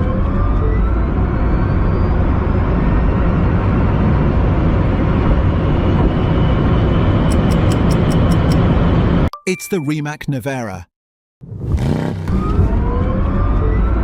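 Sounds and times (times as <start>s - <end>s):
rush of tyre and wind noise: 0.2s - 7.2s.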